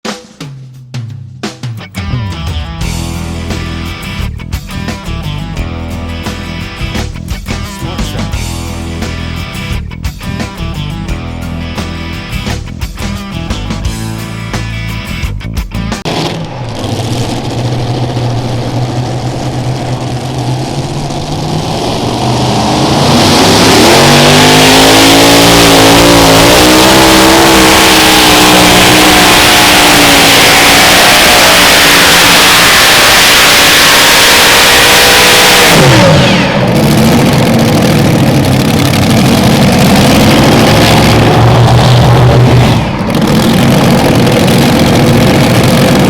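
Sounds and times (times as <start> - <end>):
pulling tractor engines revving: 16.0 - 46.0.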